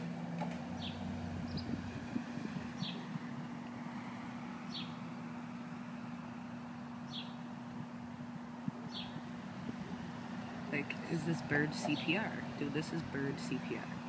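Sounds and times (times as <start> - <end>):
low mechanical hum: 0.0 - 14.0
bird chirping: 0.8 - 1.8, 2.8 - 3.1, 4.6 - 5.0, 6.8 - 7.5, 8.9 - 9.2.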